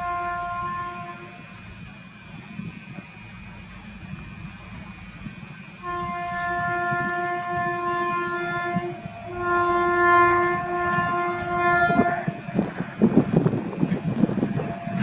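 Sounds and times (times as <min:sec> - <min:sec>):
locomotive horn: 0:00.0 - 0:01.5, 0:05.8 - 0:13.1
train rushing past: 0:00.0 - 0:15.0.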